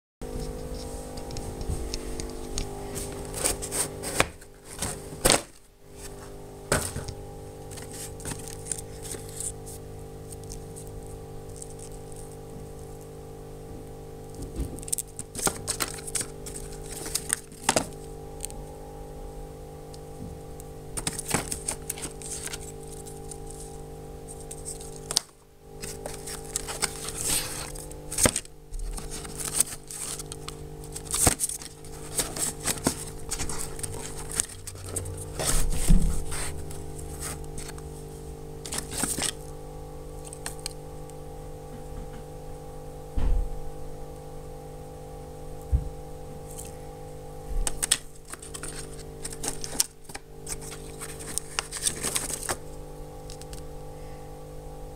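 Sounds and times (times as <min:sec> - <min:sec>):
electrical hum: 0:00.2 - 0:54.9
packaging crinkling: 0:02.2 - 0:13.2, 0:14.3 - 0:18.6, 0:21.0 - 0:39.5, 0:40.1 - 0:40.8, 0:47.6 - 0:53.7
objects scraping and knocking: 0:31.1 - 0:37.8.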